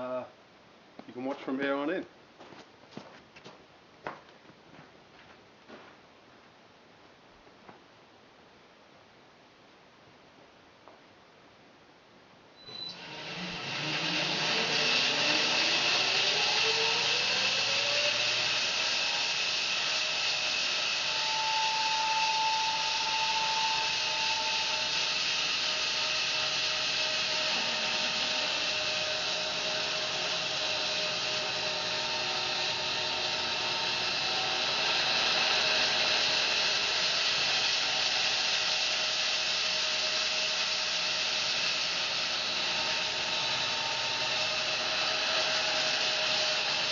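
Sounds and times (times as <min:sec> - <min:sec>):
bandsaw mill whining: 0:12.6 - 0:46.9.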